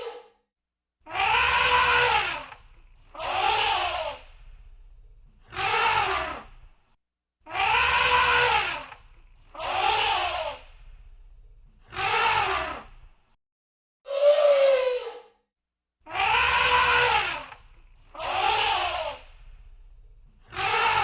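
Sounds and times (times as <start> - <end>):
elephant trumpeting: 1.1 - 4.2, 7.5 - 9.0, 16.1 - 17.6
faint low hum: 3.9 - 5.6, 10.6 - 11.9, 19.2 - 20.6.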